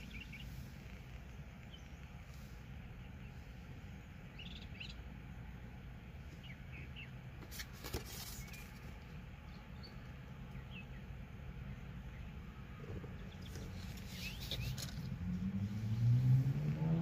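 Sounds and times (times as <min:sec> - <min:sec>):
faint bird chirps: 0:00.0 - 0:05.4, 0:09.5 - 0:15.1
low outdoor rumble: 0:00.0 - 0:17.0.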